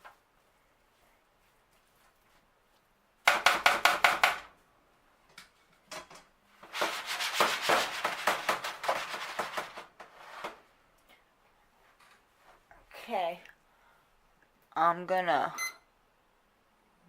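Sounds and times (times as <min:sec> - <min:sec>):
utensil clattering and scraping pan: 0:06.7 - 0:10.6.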